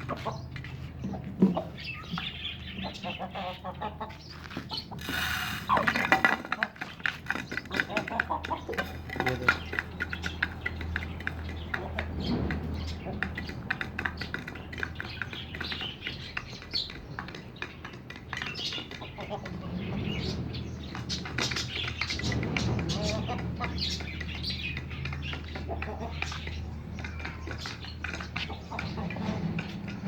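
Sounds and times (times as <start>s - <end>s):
birds chirping and calling: 0.0s - 30.0s
chickens: 0.0s - 30.0s.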